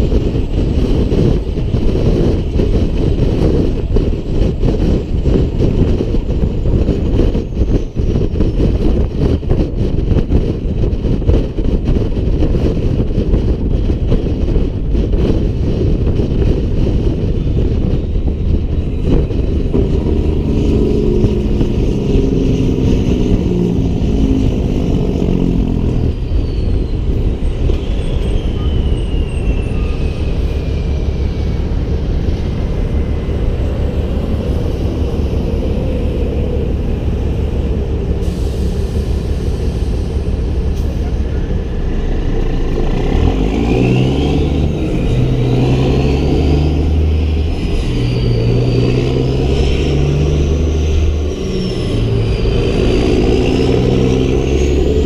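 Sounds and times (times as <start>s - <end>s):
diesel truck engine running: 0.0s - 55.0s
road noise: 0.0s - 55.0s
high whine sliding down: 15.1s - 55.0s.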